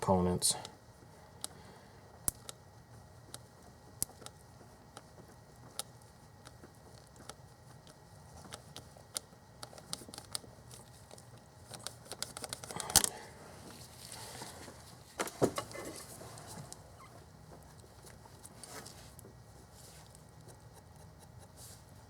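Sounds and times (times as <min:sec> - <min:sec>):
small clicks and crackles: 0:02.2 - 0:13.2.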